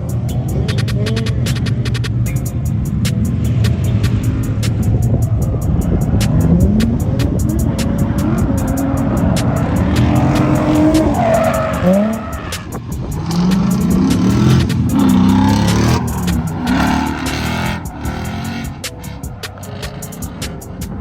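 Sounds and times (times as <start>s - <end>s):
car engine revving: 0.0s - 21.0s
tyres squealing: 5.7s - 21.0s.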